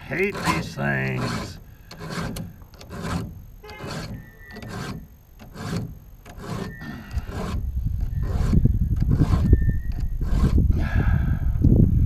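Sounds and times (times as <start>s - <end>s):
file rasping on chainsaw chain: 0.0s - 10.7s
low rumble: 7.6s - 12.0s.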